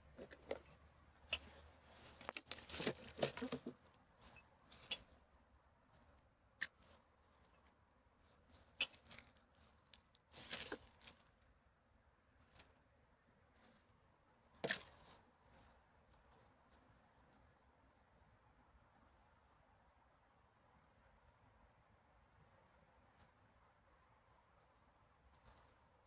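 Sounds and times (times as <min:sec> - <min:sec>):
litter rustling and crinkling: 0:00.0 - 0:05.1, 0:08.2 - 0:11.4.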